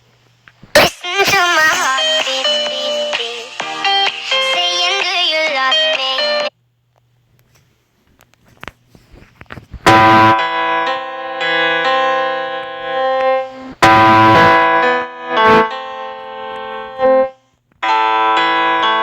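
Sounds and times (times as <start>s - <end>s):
electric piano chords: 9.9s - 19.0s.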